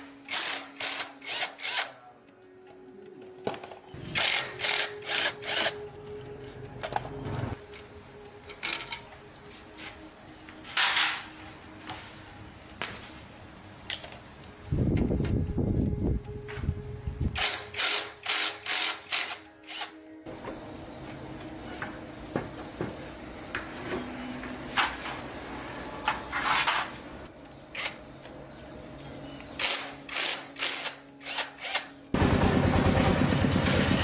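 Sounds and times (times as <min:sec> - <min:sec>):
motorcycle engine running: 0:32.2 - 0:34.0.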